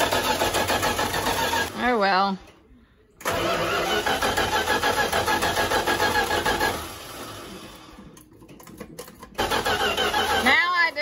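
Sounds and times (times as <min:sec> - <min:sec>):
starter cranking engine: 0:00.0 - 0:01.8, 0:03.2 - 0:07.8, 0:09.2 - 0:10.8.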